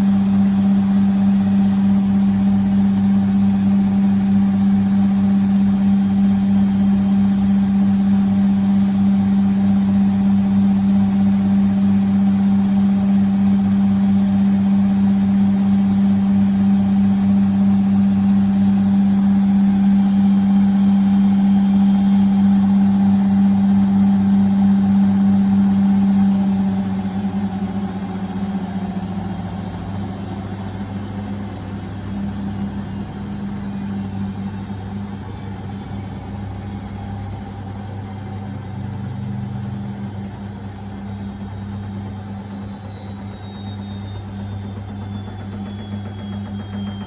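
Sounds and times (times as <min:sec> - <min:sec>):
washing machine drum spinning: 0:00.0 - 0:27.8, 0:38.4 - 0:47.0.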